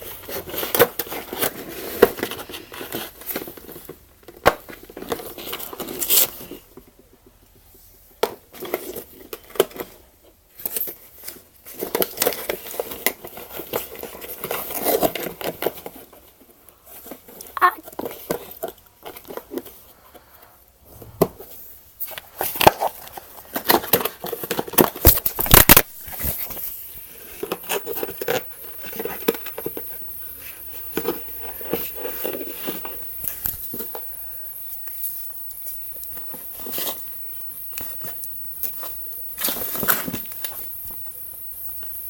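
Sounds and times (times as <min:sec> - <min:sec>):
cardboard rustling: 0:22.4 - 0:34.2.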